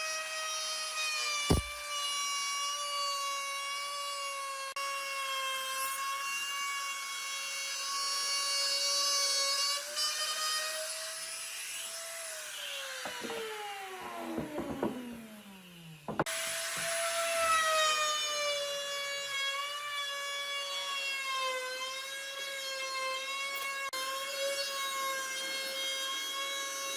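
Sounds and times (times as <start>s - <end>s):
power tool motor whining: 1.3s - 2.6s
knocks: 1.5s - 1.8s, 13.0s - 15.2s, 16.1s - 16.3s.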